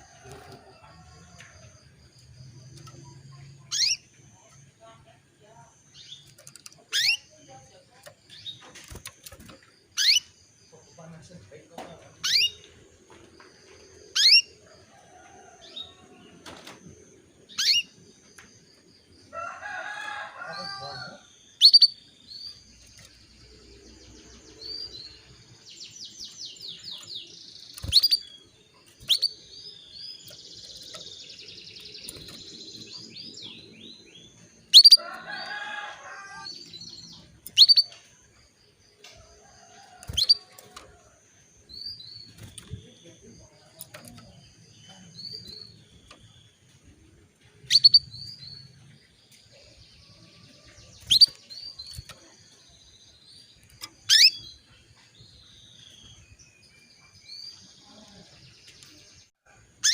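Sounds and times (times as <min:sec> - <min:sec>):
canary trills and chatter: 0:00.0 - 0:59.9
canary chirping: 0:02.2 - 0:05.0, 0:05.9 - 0:11.1, 0:12.2 - 0:12.8, 0:14.1 - 0:14.6, 0:17.5 - 0:18.0, 0:19.8 - 0:23.7, 0:26.1 - 0:38.0, 0:39.5 - 0:40.8, 0:47.6 - 0:48.8, 0:53.4 - 0:56.4.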